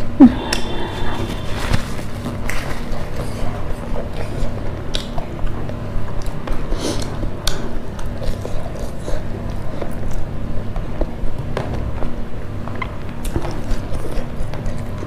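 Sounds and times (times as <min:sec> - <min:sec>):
low hum: 0:00.0 - 0:03.8
chewing and wet mouth smacks: 0:01.4 - 0:05.6, 0:06.2 - 0:10.3.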